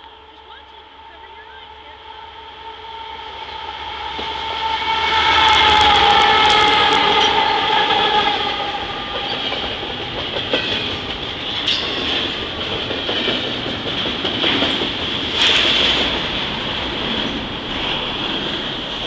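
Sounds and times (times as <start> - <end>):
train cars rumbling past: 0.0 - 19.0
train whine: 0.0 - 19.0
wheels clattering on rails: 5.4 - 19.0.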